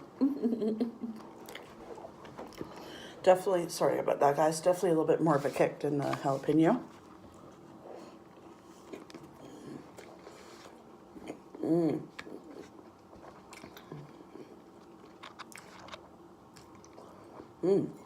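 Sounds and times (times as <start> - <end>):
chewing with soft crunches: 1.2 - 3.2, 6.8 - 18.0
person humming: 17.6 - 18.0.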